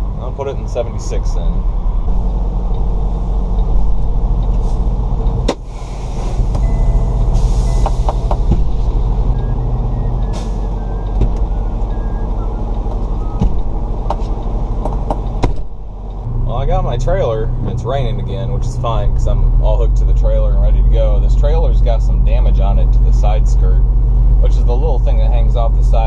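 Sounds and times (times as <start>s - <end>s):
diesel truck engine running: 0.0s - 26.0s
air hissing: 5.6s - 9.0s.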